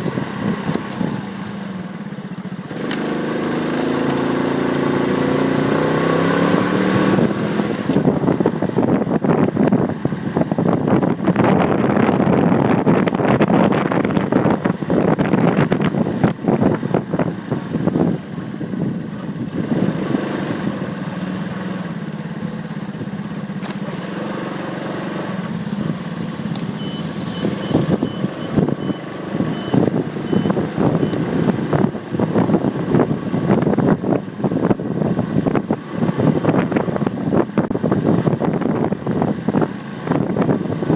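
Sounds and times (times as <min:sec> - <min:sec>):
motorcycle engine: 0:00.0 - 0:40.9
wind noise: 0:06.0 - 0:20.8, 0:25.2 - 0:40.9
short high beeps: 0:26.7 - 0:31.4.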